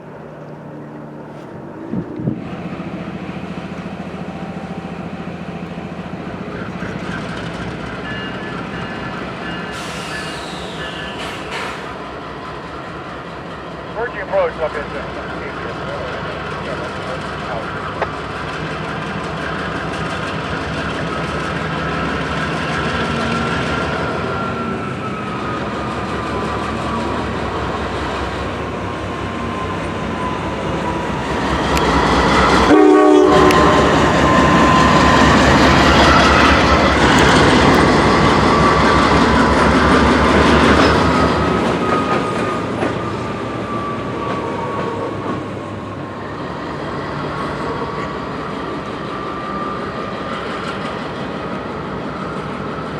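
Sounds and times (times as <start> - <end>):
train rumble and rail clatter: 0.0 - 52.9
train wheels squealing: 6.8 - 12.0, 21.0 - 32.7, 33.4 - 51.2.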